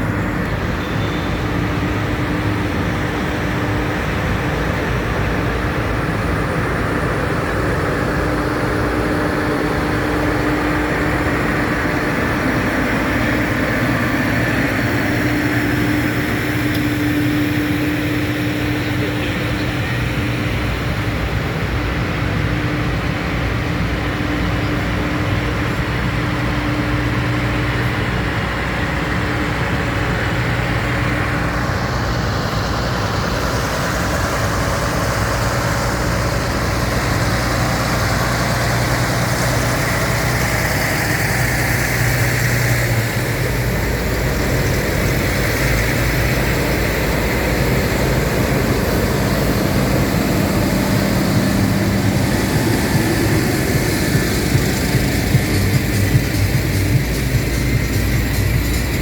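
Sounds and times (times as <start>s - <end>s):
other vehicle engines: 0.0s - 59.0s
tractor engine running: 0.0s - 59.0s.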